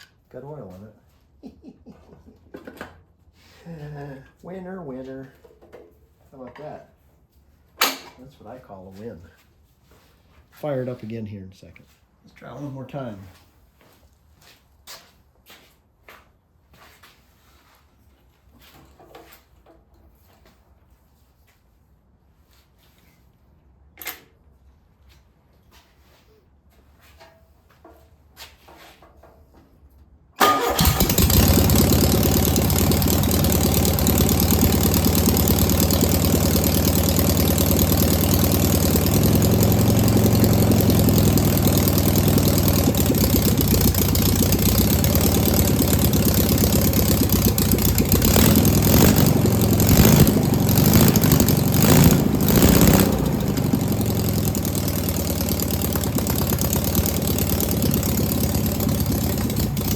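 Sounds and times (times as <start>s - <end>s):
car engine starting and running: 30.4s - 59.9s.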